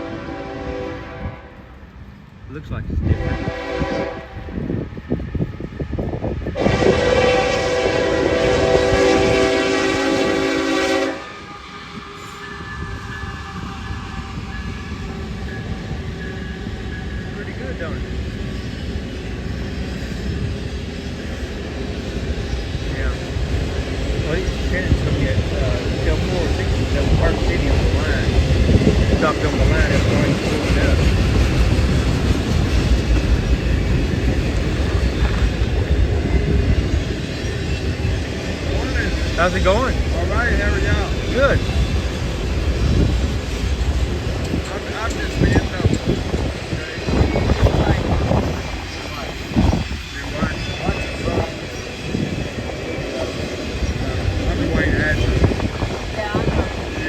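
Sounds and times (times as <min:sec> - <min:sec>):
train horn: 0:00.0 - 0:01.8, 0:03.0 - 0:04.6, 0:06.5 - 0:17.6
train rumbling on rails: 0:00.0 - 0:57.0.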